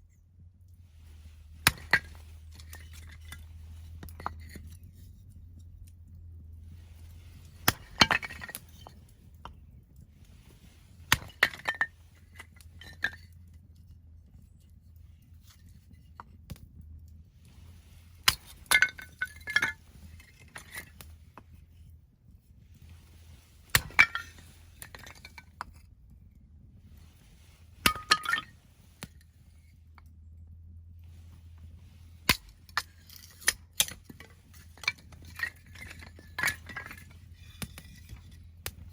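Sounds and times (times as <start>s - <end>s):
axe splitting firewood: 1.1s - 4.7s, 7.0s - 9.0s, 10.7s - 13.2s, 18.1s - 21.1s, 23.6s - 25.6s, 27.6s - 29.2s, 31.3s - 38.9s.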